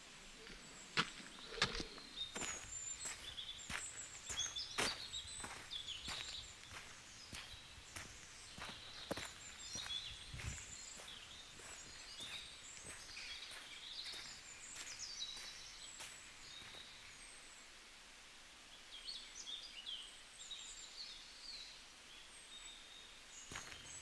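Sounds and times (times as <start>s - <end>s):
songbirds chirping faintly: 0.0s - 24.0s
footsteps on a dirt trail: 0.4s - 17.0s, 23.5s - 24.0s.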